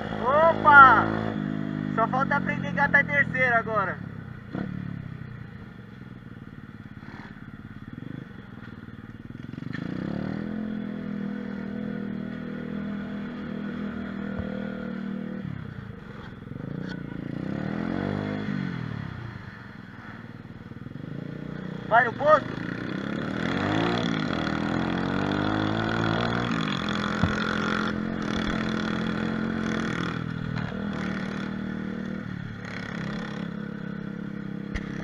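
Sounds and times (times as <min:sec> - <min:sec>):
small motorbike engine revving: 0:09.4 - 0:20.2, 0:21.0 - 0:35.0.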